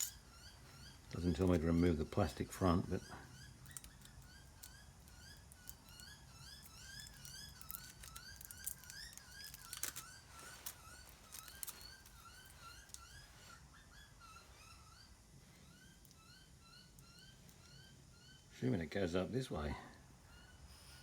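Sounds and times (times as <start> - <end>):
bird chirping: 0.0 - 21.0
hands crinkling foil: 6.6 - 13.1.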